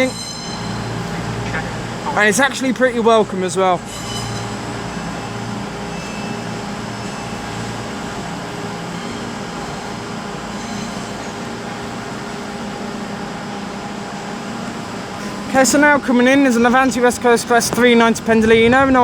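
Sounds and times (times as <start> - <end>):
low drone: 0.0 - 11.4.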